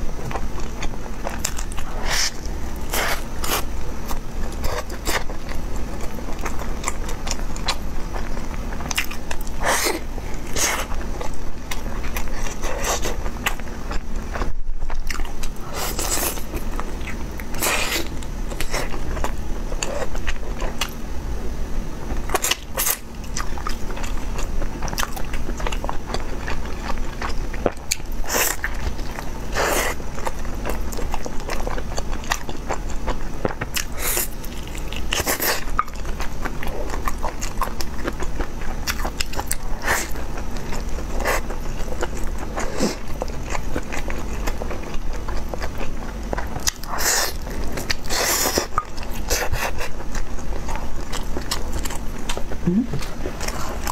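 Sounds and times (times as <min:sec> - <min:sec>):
steady low hum: 0:00.0 - 0:53.9
person biting and chewing food: 0:00.3 - 0:21.0.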